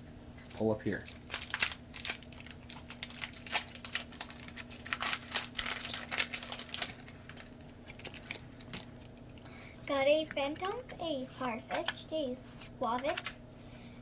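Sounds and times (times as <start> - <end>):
foil wrapper tearing and crinkling: 0.4 - 9.2.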